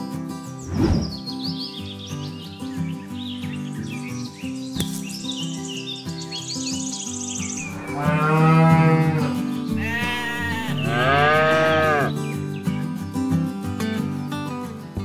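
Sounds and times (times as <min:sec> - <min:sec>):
light background music: 0:00.1 - 0:15.0
cow mooing: 0:07.7 - 0:12.1.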